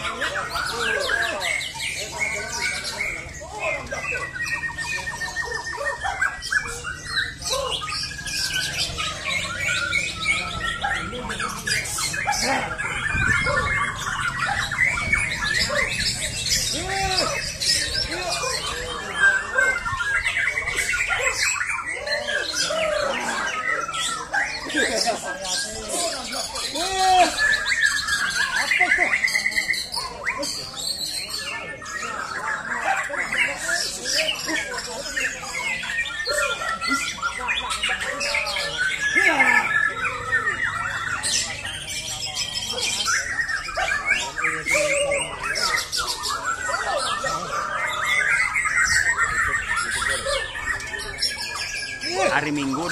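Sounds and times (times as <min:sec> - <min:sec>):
birds singing: 0:00.0 - 0:52.9.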